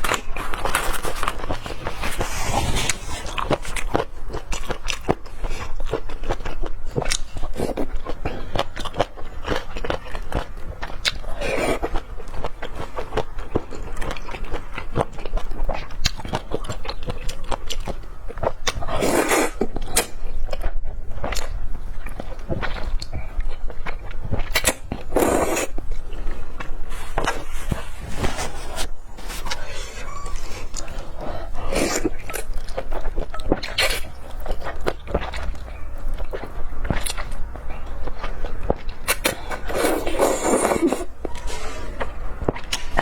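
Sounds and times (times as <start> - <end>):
biting and chewing: 0.0 - 43.0.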